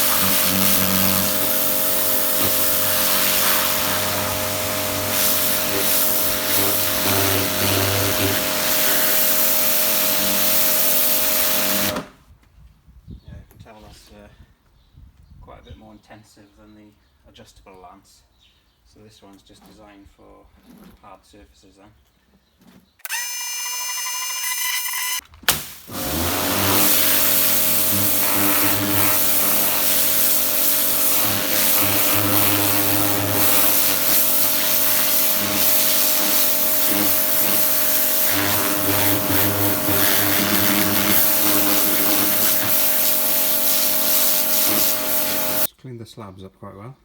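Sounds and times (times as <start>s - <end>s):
motor hum: 0.0s - 12.1s, 23.1s - 25.2s, 25.9s - 45.7s
pressure washer jet hissing: 0.0s - 12.1s, 23.1s - 45.7s.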